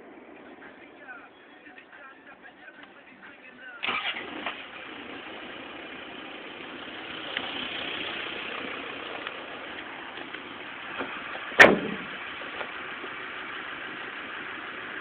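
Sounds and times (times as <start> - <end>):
car engine starting and idling: 3.7 - 15.0.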